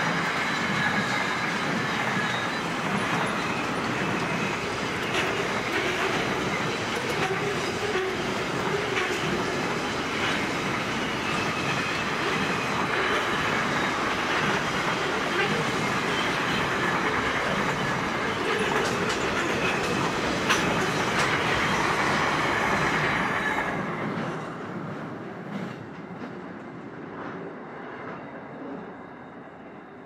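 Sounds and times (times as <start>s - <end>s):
freight train rumbling past: 0.0s - 30.0s
train wheel clicks: 16.2s - 23.4s.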